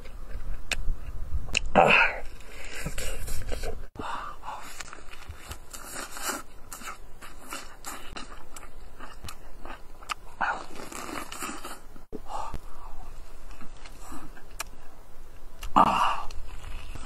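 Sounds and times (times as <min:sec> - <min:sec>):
person chewing meat: 0:04.6 - 0:11.8.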